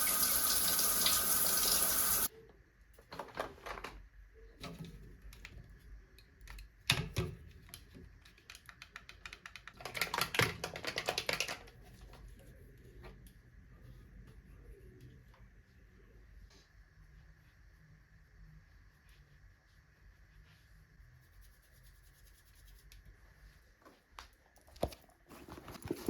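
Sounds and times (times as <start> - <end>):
running water tap: 0.0 - 2.3
small clicks and clatters: 7.6 - 12.1.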